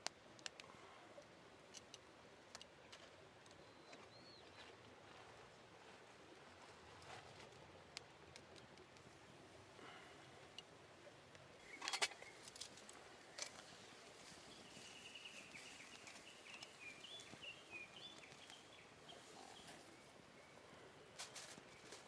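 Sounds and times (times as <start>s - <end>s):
faint bird chirping: 3.1s - 5.6s, 8.4s - 22.0s.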